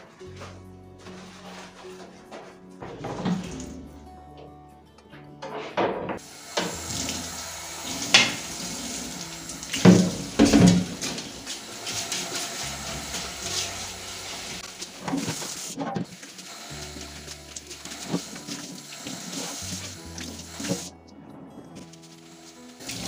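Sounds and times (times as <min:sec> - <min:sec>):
items knocking in sink: 0:02.8 - 0:03.8, 0:09.7 - 0:12.0
tap water running into sink: 0:06.2 - 0:20.9, 0:22.3 - 0:23.0.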